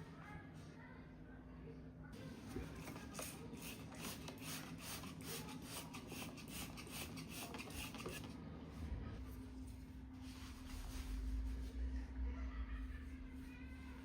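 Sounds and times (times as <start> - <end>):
rhythmic scrubbing on a surface: 2.7 - 8.4.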